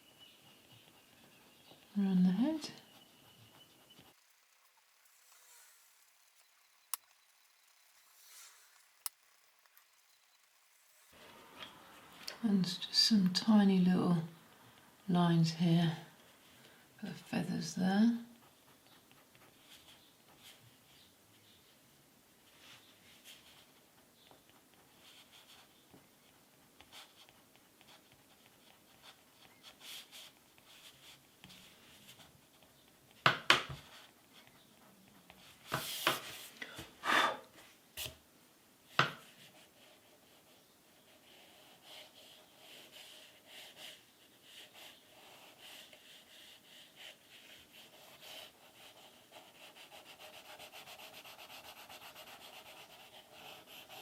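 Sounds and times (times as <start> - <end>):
pencil scratching on paper: 39.2 - 54.0.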